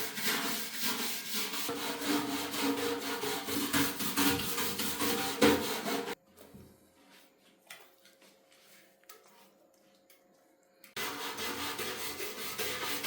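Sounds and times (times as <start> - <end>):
hand abrasive rubbing strokes: 11.0 - 13.0.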